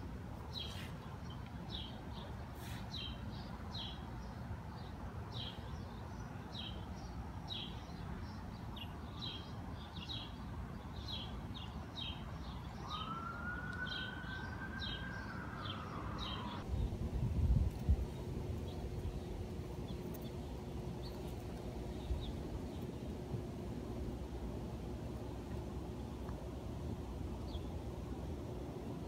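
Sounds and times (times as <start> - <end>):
bird chirping: 0.5 - 17.0
siren wailing: 12.8 - 16.6.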